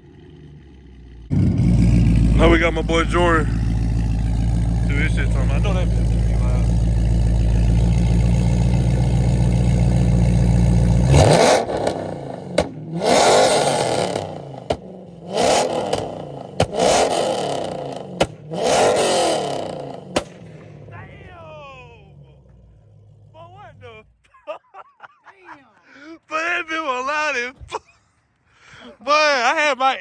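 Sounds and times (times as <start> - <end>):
car engine droning and revving: 0.0 - 24.2
exhaust pops: 1.3 - 21.5.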